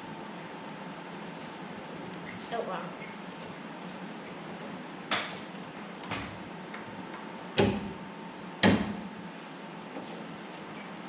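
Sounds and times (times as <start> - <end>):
sharp knocks on metal: 7.6 - 8.0, 8.6 - 9.1.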